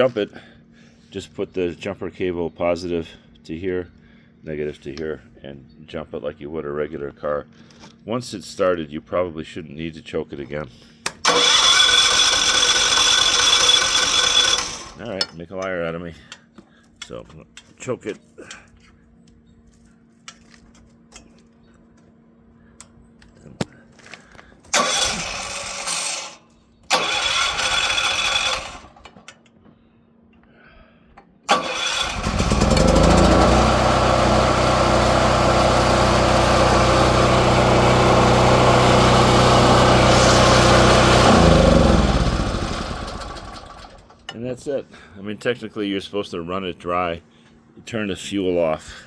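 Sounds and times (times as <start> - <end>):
generator cranking: 11.1 - 15.3, 24.7 - 29.3, 31.5 - 44.3
generator engine running: 11.2 - 15.1, 24.7 - 26.3, 26.9 - 29.1, 31.5 - 44.2.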